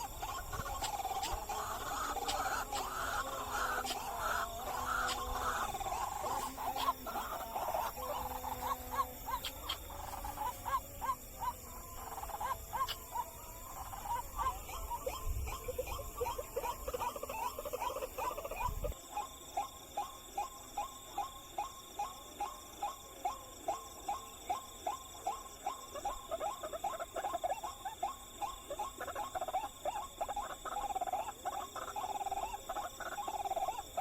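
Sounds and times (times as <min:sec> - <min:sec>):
waterhen calling: 0:00.0 - 0:19.0.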